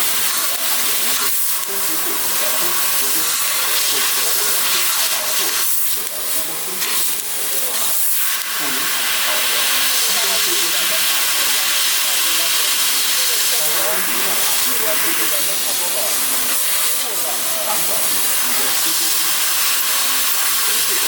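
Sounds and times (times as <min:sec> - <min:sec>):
laser cutter gas hiss: 0:00.0 - 0:21.0.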